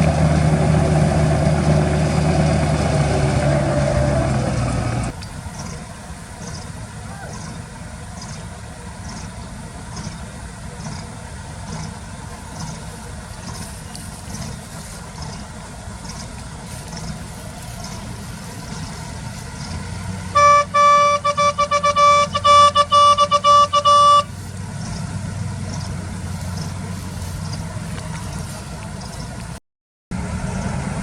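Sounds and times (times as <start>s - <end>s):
diesel engines running: 0.0s - 31.0s
vehicle horn honking short blasts: 20.3s - 24.4s.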